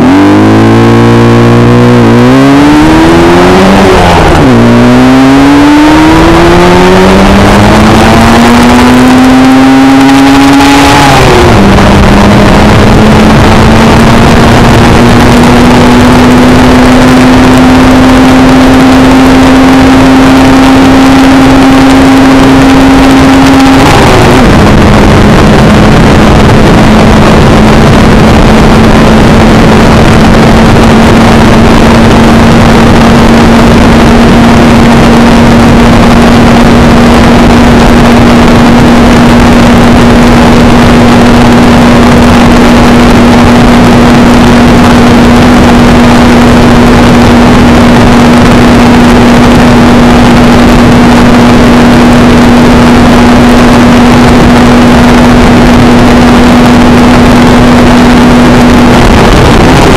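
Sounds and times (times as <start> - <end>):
two-stroke motorcycle engine revving: 0.0 - 59.9.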